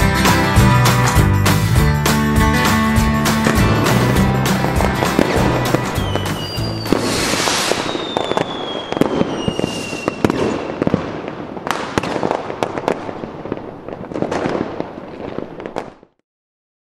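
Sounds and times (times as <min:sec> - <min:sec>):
falling firework whistle: 0:03.4 - 0:13.0.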